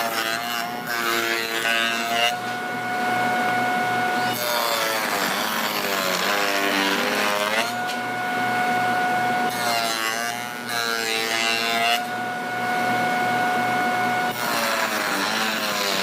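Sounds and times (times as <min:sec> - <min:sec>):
machine cutting wood: 0:00.0 - 0:02.7, 0:03.3 - 0:08.2, 0:09.1 - 0:12.2, 0:13.9 - 0:16.0
woodworking machine whining: 0:00.0 - 0:16.0.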